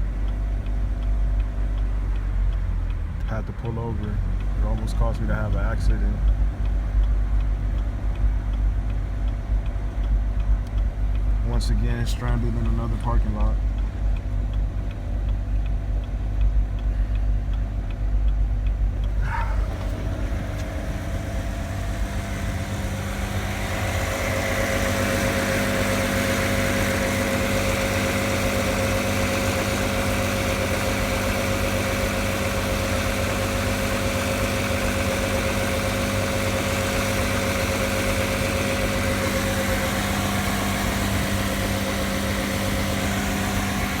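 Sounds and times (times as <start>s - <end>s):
car engine surging idle: 0.0s - 44.0s.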